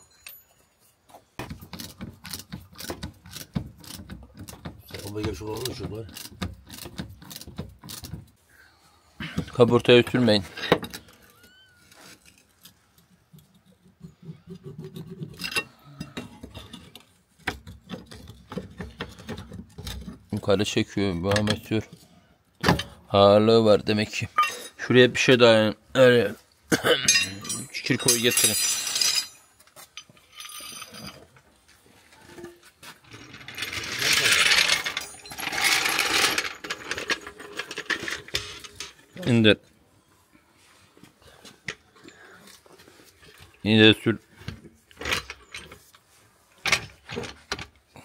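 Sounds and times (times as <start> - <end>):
faint metal clinks: 0.0 - 1.4, 27.0 - 31.3
metal parts clicking and knocking: 1.4 - 8.4, 27.1 - 31.3, 32.4 - 39.2, 44.9 - 45.8, 46.6 - 47.8
floor jack rattling and scraping: 32.4 - 39.0.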